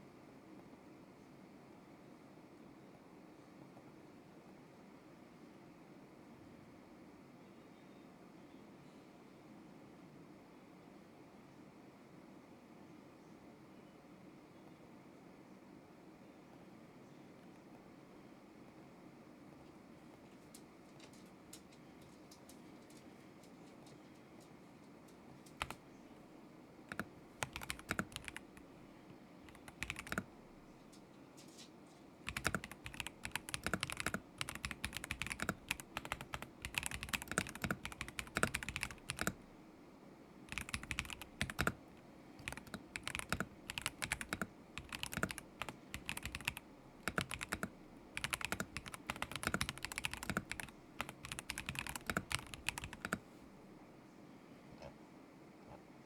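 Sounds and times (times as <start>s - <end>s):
typing on mechanical keyboard: 25.5s - 25.8s, 26.9s - 28.7s, 29.4s - 30.4s, 32.3s - 39.4s, 40.5s - 53.2s.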